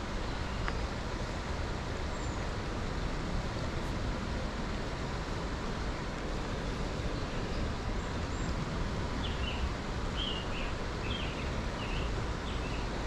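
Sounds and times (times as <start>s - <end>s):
outdoor background hiss: 0.0s - 13.0s
songbird chirping: 7.0s - 13.0s.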